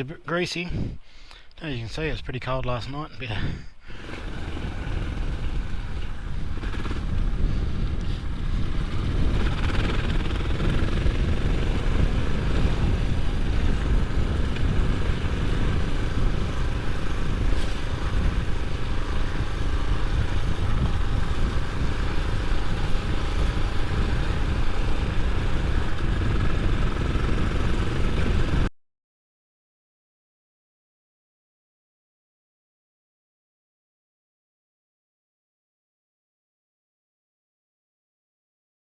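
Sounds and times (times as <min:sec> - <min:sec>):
motorcycle engine running: 0:04.0 - 0:28.7.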